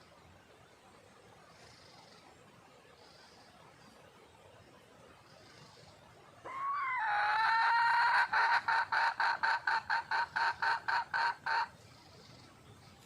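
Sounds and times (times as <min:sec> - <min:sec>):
junglefowl hen calling: 0:05.6 - 0:12.5.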